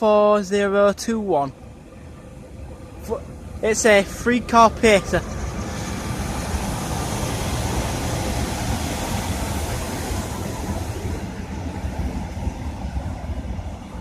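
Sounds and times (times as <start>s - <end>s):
diesel train rumbling: 0.0s - 14.0s
train hiss: 2.8s - 13.2s.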